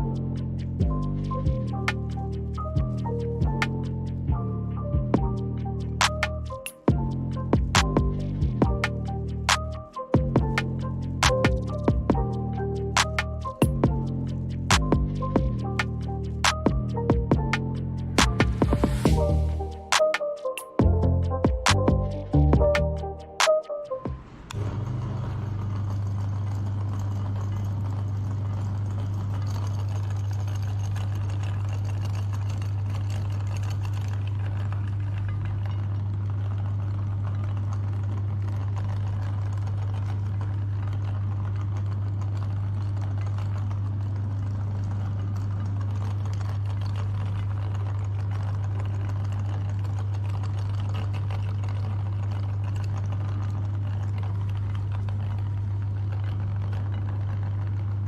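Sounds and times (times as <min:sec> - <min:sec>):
meat grinder motor hum: 0:24.3 - 0:58.0.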